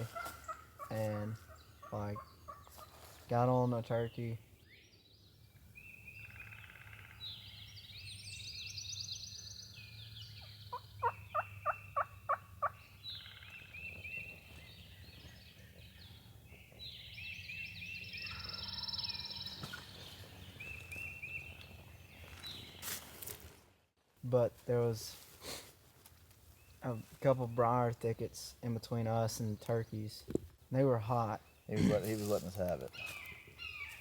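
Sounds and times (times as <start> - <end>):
wild turkey calling: 0.0 - 3.3, 5.6 - 8.0, 8.6 - 22.5, 31.0 - 34.0
songbirds chirping and trilling: 0.0 - 23.4, 24.2 - 34.0.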